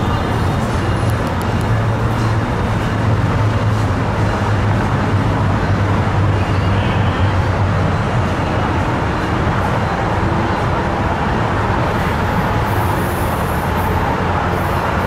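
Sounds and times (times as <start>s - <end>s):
diesel train idling: 0.0s - 15.0s.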